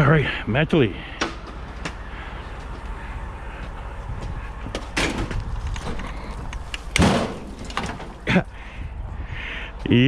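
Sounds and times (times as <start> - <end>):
loud clunk: 5.0 - 8.4.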